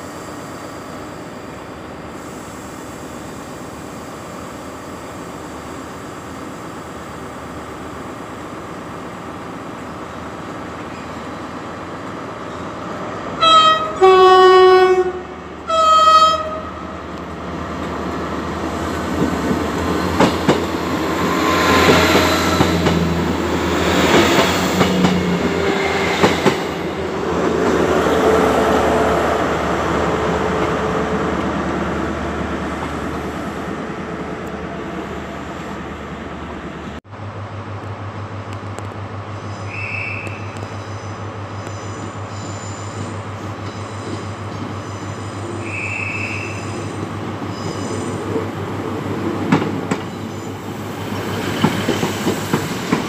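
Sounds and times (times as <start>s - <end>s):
train rumble: 0.0s - 53.0s
train horn: 13.4s - 17.0s, 45.6s - 46.8s
train wheels clicking over rail joints: 18.9s - 27.8s, 49.2s - 50.4s, 51.0s - 53.0s.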